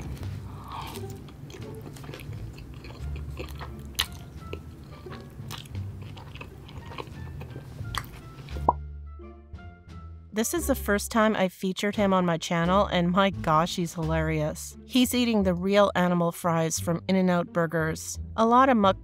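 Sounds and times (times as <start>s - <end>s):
chewing food: 0.0s - 8.8s
background music with bass: 0.0s - 11.3s, 12.0s - 19.0s.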